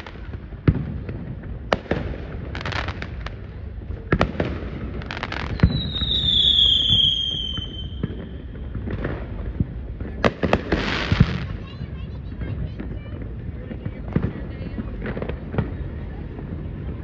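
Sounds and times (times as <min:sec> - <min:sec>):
firework crackling: 0:00.0 - 0:17.0
high firework whistle: 0:05.4 - 0:08.1.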